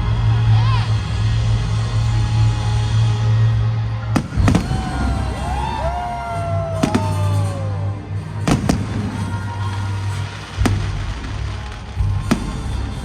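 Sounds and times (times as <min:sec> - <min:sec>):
music playing: 0:00.0 - 0:13.0
fireworks bangs: 0:04.2 - 0:06.0, 0:06.8 - 0:07.8, 0:08.4 - 0:13.0.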